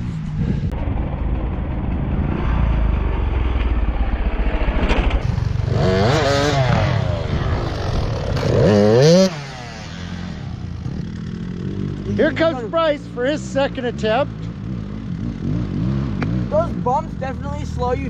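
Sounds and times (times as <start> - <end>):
dirt bike engine revving: 5.2 - 18.0.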